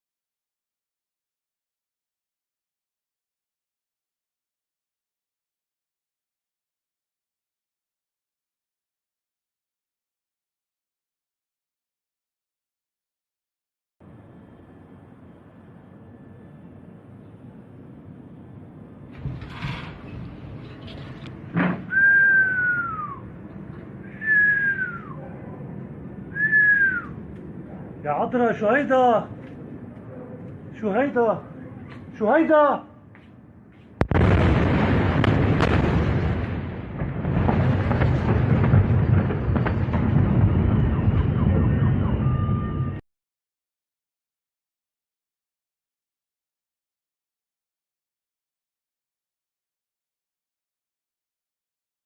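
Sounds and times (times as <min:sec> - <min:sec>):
deep continuous rumbling: 0:17.1 - 0:32.3, 0:34.0 - 0:43.0
whistled notes sliding down: 0:21.9 - 0:23.3, 0:24.1 - 0:25.2, 0:26.3 - 0:27.2
sharp cracks: 0:34.0 - 0:36.4.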